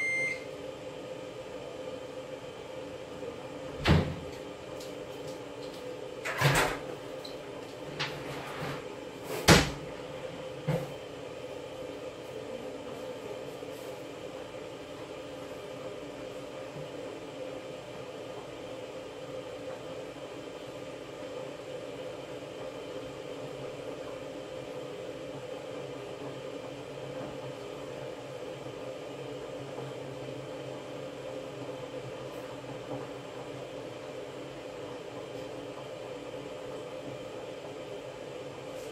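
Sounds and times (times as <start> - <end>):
washing machine humming: 0.0 - 38.9
washing machine knocks: 3.8 - 4.3, 9.5 - 9.9.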